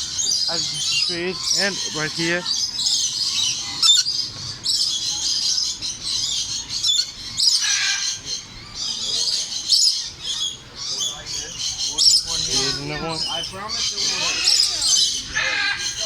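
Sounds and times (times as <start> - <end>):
parrots chattering: 0.0 - 16.0.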